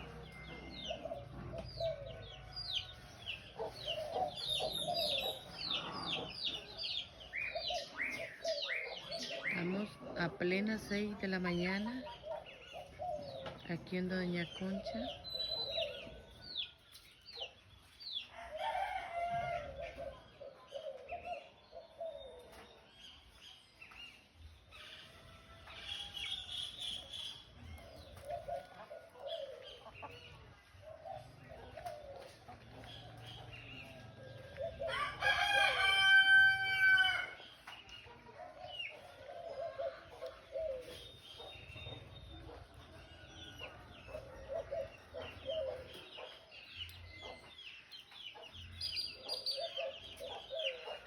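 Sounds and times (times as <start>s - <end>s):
small birds chirping: 0.0s - 18.5s, 19.8s - 36.2s, 37.1s - 51.0s
chickens clucking: 0.0s - 51.0s
rooster crowing: 34.8s - 37.4s.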